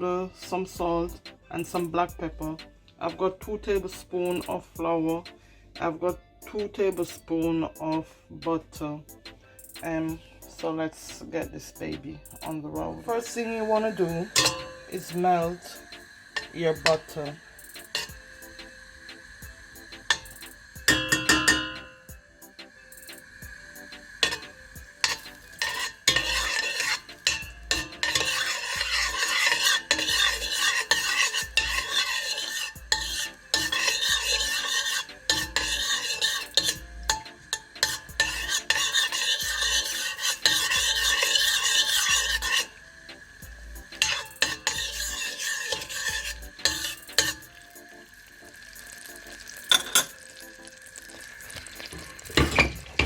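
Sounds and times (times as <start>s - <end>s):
utensil scraping a pan: 12.4s - 22.1s, 24.0s - 42.8s, 43.8s - 47.8s, 48.8s - 50.4s, 51.0s - 53.0s
butter sizzling in a saucepan: 12.4s - 53.0s.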